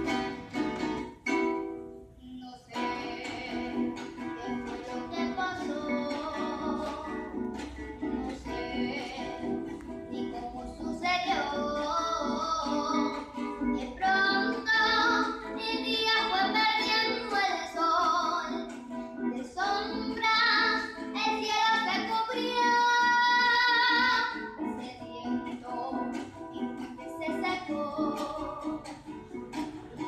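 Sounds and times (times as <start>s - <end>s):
plucked string accompaniment: 0.0s - 30.0s
woman singing: 2.2s - 29.2s.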